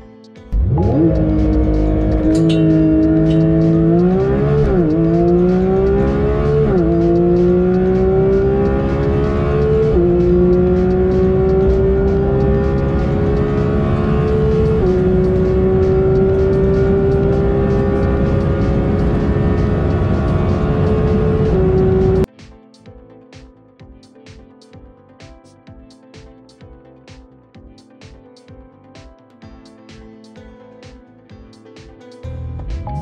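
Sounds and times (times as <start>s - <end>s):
car engine accelerating through gears: 0.6s - 22.3s.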